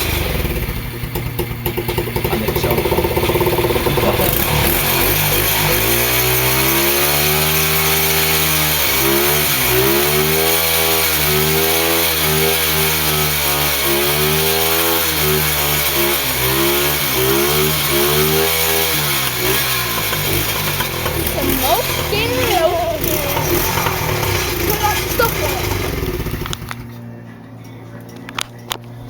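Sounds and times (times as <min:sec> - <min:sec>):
motorbike engine revving hard: 0:00.0 - 0:27.0.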